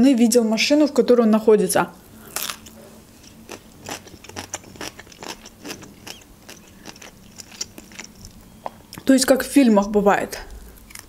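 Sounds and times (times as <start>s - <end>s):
person chewing cucumber: 2.2s - 9.1s, 10.5s - 11.0s.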